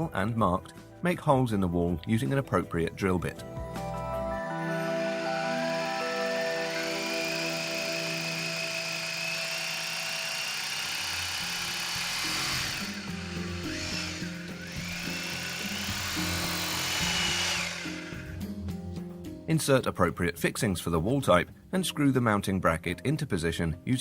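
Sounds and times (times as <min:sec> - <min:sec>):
background music: 0:00.0 - 0:24.0
electric drill whining: 0:04.5 - 0:18.7.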